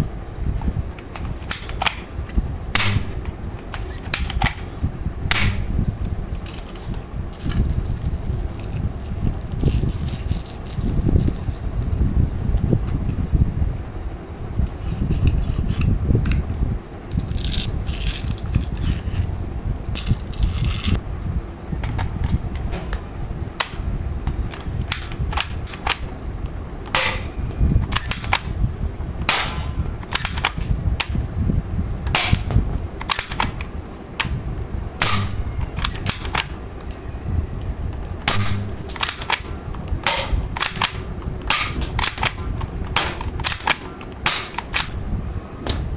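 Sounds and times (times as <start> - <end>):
low rumble: 0.7 - 12.8
toy gun firing cracks: 1.1 - 2.2, 2.8 - 11.7, 17.1 - 19.3, 23.6 - 26.1, 26.9 - 28.6, 29.2 - 31.2, 32.1 - 34.4, 35.0 - 37.0, 38.0 - 45.0.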